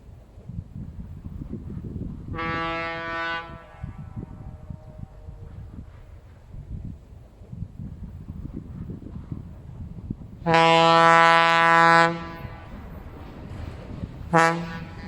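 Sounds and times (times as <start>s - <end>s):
locomotive horn blast: 2.3s - 5.8s, 10.4s - 12.8s, 14.3s - 15.0s.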